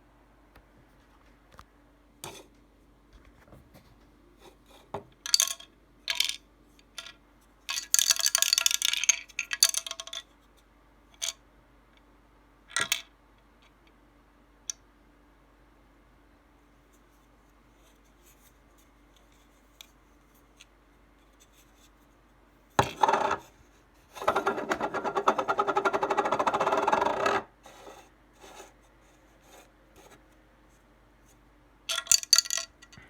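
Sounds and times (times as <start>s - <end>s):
small hard objects rattling: 31.9s - 33.0s.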